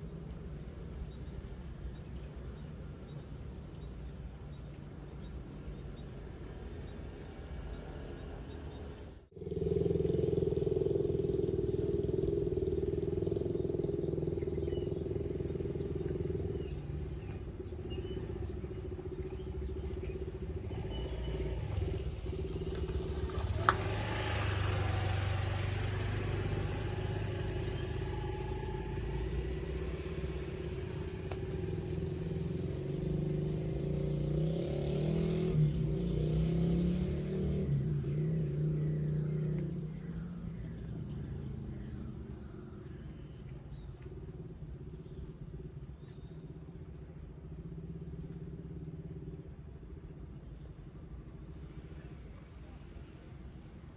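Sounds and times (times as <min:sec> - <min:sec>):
motorcycle engines running: 0:00.0 - 0:53.9.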